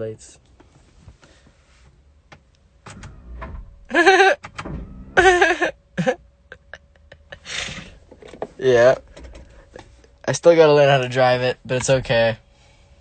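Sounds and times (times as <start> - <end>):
person squealing: 3.9 - 4.4.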